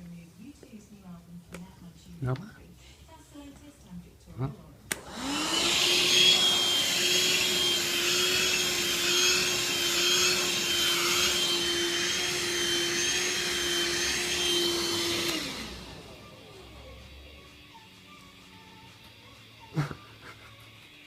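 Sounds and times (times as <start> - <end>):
vacuum cleaner motor whine: 4.9 - 19.7.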